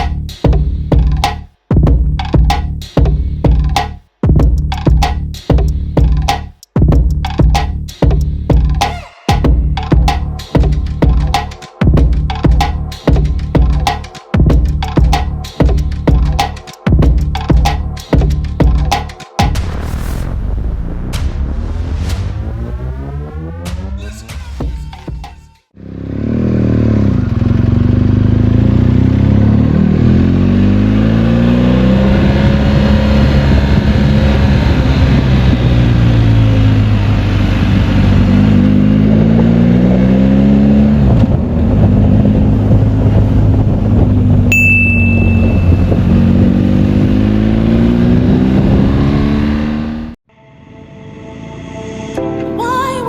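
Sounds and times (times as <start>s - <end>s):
motorcycle engine accelerating: 20.6s - 24.0s, 25.8s - 50.2s
wind noise: 32.2s - 38.4s, 41.0s - 47.1s
short high beep: 44.5s - 46.1s.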